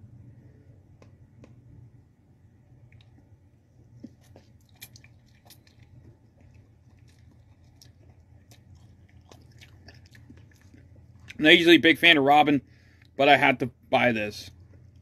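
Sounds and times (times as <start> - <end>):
low steady hum: 0.0 - 15.0
chewing and mouth smacks: 2.8 - 11.4.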